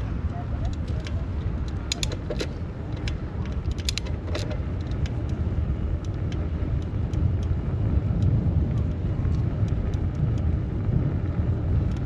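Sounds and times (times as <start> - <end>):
low rumble: 0.0 - 12.0
road traffic: 0.0 - 12.0
metallic clicks and rattles: 0.6 - 5.4.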